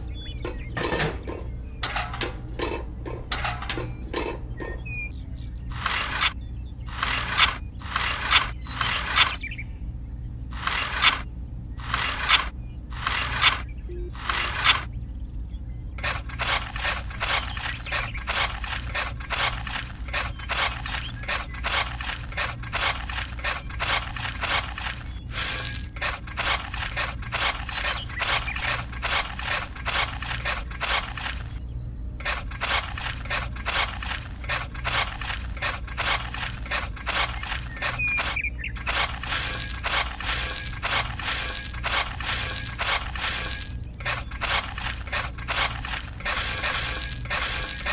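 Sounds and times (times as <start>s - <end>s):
low hum: 0.0s - 47.9s
gritty scraping strokes: 5.7s - 9.4s, 16.0s - 31.6s, 32.2s - 47.9s.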